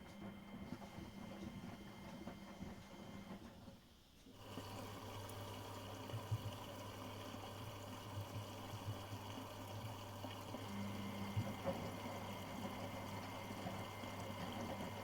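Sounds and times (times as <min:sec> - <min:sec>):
washing machine motor hum: 0:00.0 - 0:03.6, 0:04.4 - 0:15.0
water sloshing in drum: 0:04.4 - 0:15.0.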